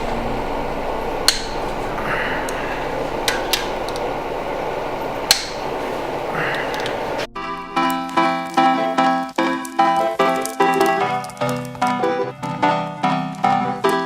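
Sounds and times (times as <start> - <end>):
room hiss: 0.0 - 12.3
music: 7.3 - 14.0.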